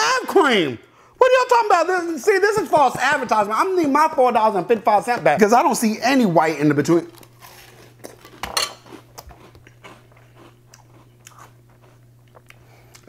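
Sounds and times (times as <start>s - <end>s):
crunchy cereal being chewed: 7.0s - 13.0s.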